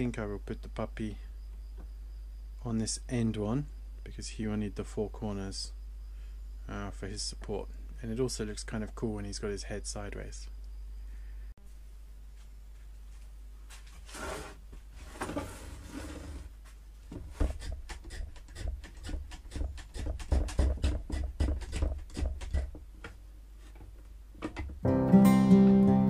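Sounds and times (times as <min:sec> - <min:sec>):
wooden board scraping: 0:13.8 - 0:22.8
acoustic guitar music: 0:24.8 - 0:26.0.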